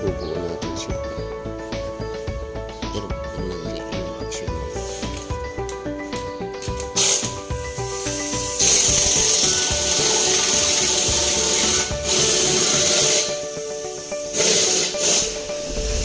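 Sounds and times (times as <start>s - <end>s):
background music: 0.0s - 16.0s
hissing spray or air blast: 4.7s - 5.2s, 7.0s - 16.0s.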